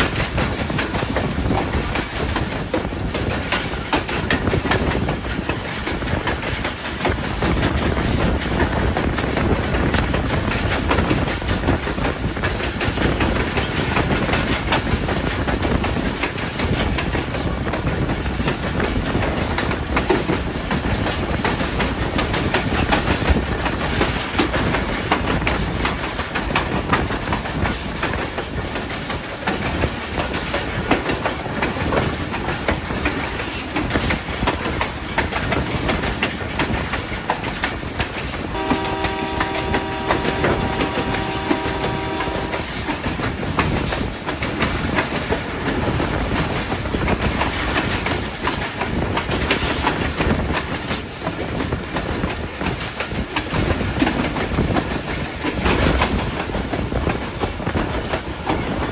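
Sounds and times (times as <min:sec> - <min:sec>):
train rumbling on rails: 0:00.0 - 0:58.9
wheels clacking over rail joints: 0:00.0 - 0:58.9
train horn blast: 0:38.5 - 0:42.8.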